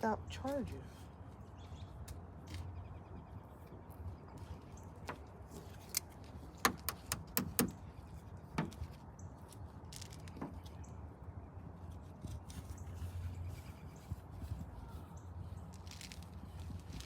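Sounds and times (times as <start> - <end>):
sharp clicks and taps: 6.6 - 7.8.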